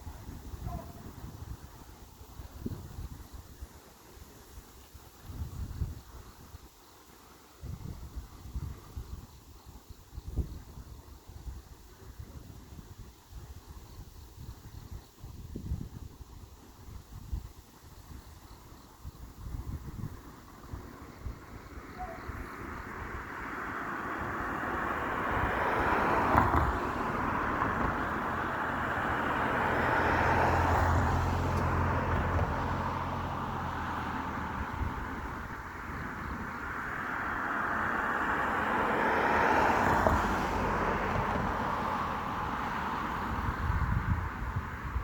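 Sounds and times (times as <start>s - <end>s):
low engine hum: 19.6s - 45.0s
vehicles passing: 20.0s - 45.0s.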